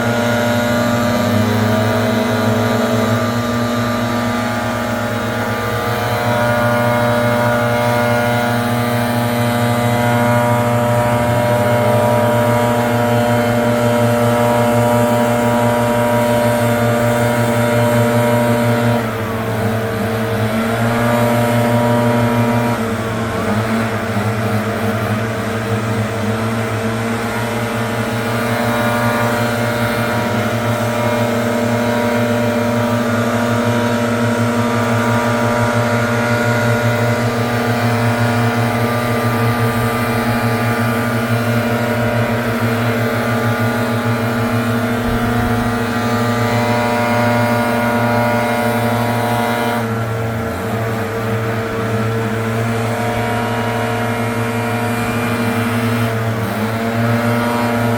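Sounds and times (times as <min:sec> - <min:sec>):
leaf blower engine running: 0:00.0 - 0:57.9.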